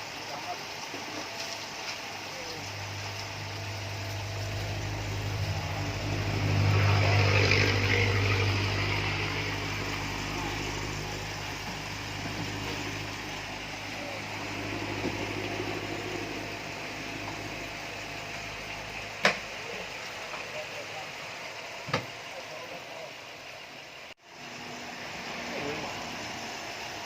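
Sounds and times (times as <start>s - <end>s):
machine hum: 0.0s - 21.6s
rushing noise: 2.0s - 19.1s.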